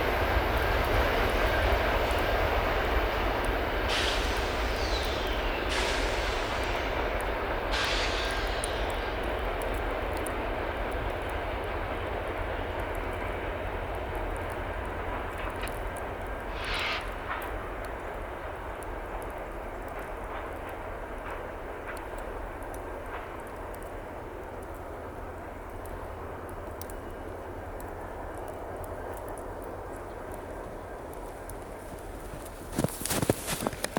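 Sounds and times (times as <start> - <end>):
freight train rumbling: 0.0 - 33.9.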